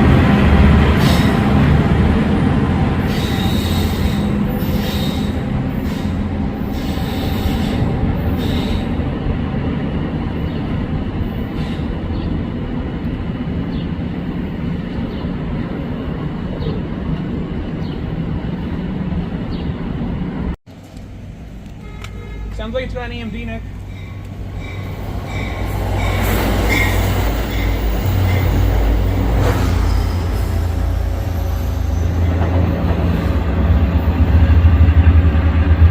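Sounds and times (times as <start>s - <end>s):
train rumbling: 0.0s - 35.9s
train wheels squealing: 3.0s - 8.9s, 23.9s - 33.3s.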